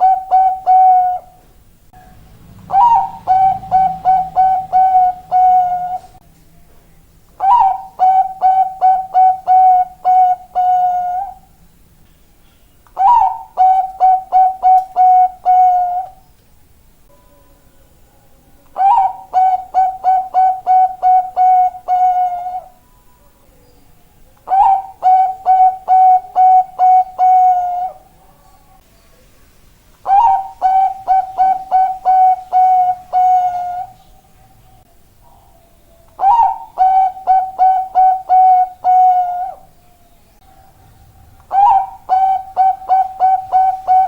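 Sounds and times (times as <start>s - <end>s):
dove cooing: 0.0s - 1.5s, 2.6s - 6.2s, 7.4s - 11.5s, 13.0s - 16.2s, 18.8s - 22.8s, 24.4s - 28.4s, 30.0s - 34.2s, 35.2s - 44.0s.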